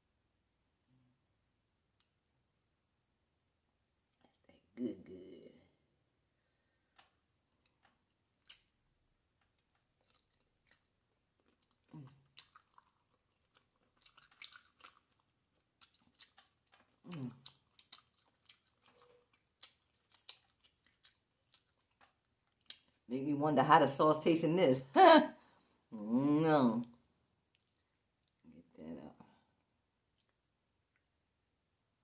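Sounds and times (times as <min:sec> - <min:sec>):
wet lip smacks and mouth clicks: 0:06.9 - 0:23.0, 0:27.5 - 0:28.4, 0:30.1 - 0:31.1
close-up chewing: 0:06.9 - 0:23.1, 0:27.4 - 0:28.5.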